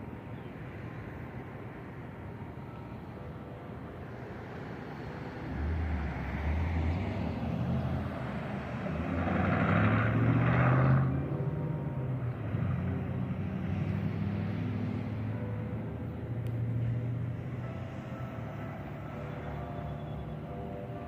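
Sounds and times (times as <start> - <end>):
vehicle engine rumbling past: 4.5 - 20.8.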